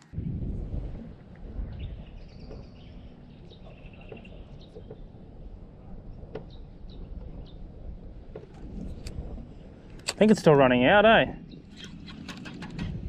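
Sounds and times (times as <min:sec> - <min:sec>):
steady low rumble: 0:00.0 - 0:13.0
birds chirping and trilling: 0:01.5 - 0:09.8, 0:11.0 - 0:13.0.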